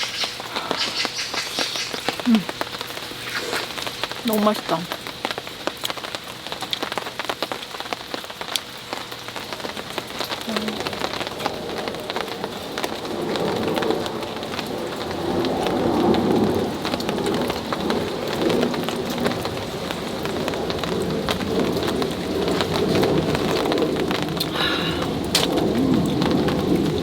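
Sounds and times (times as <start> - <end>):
heavy rain on a tarp: 0.0 - 27.0
thunder rumbling: 9.4 - 27.0.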